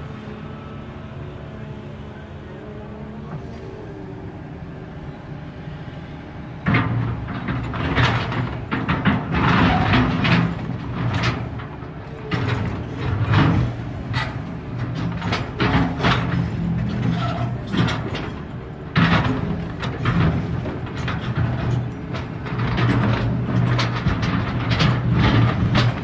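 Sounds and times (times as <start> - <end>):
diesel engine running: 0.0 - 26.0
rock banging and scraping on steel: 6.6 - 26.0.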